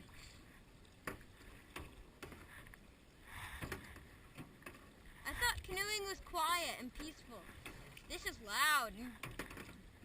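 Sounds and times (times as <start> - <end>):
faint water noise: 0.0 - 10.0
paddle knocking canoe hull: 1.0 - 2.6, 9.2 - 9.9.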